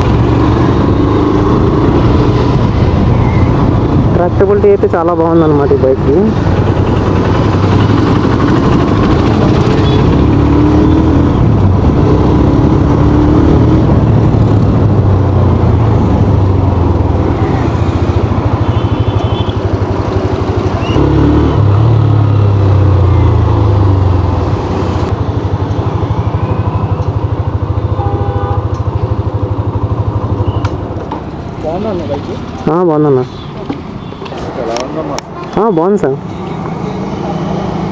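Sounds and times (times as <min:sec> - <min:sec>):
motorcycle engine running: 0:05.5 - 0:32.5.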